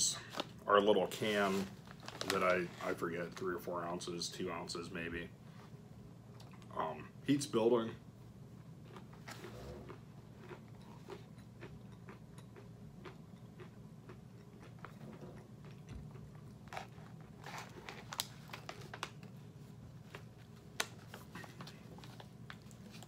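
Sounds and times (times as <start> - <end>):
chewing crunchy peanuts: 8.7 - 19.3.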